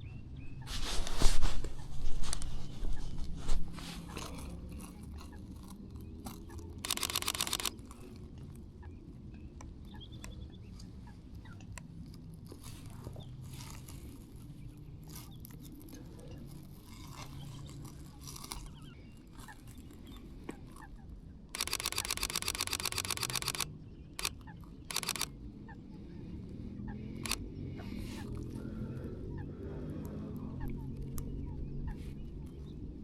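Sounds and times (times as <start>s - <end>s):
faint birds calling: 0.0s - 33.0s
camera shutter clicking: 6.8s - 7.8s, 21.6s - 25.3s.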